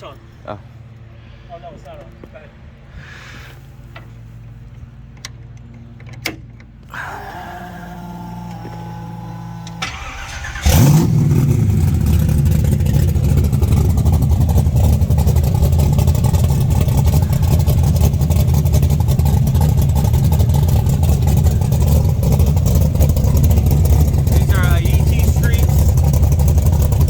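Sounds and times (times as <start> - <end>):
vee eight engine starting and idling: 5.2 - 27.0
steady hum: 21.4 - 27.0.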